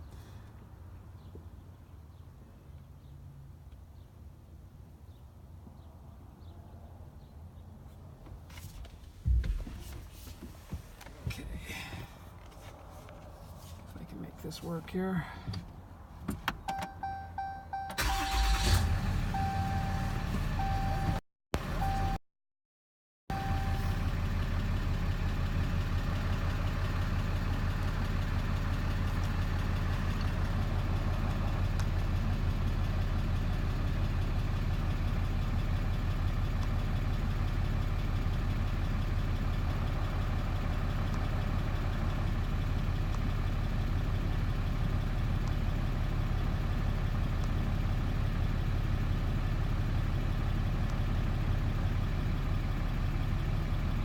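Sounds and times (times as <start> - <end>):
short beep: 16.7 - 18.1, 19.3 - 21.2, 23.3 - 24.0
pickup truck engine idling: 18.0 - 21.0.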